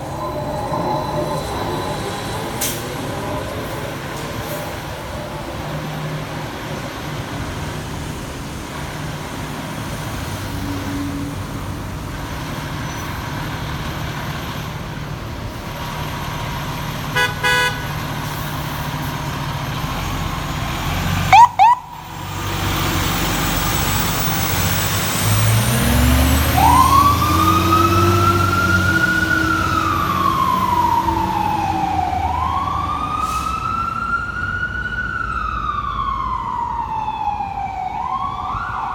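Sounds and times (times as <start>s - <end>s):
loud horn blast: 17.1s - 18.1s
short horn tone bursts: 17.2s - 17.9s
electronic siren wailing: 21.3s - 22.1s, 26.4s - 34.3s.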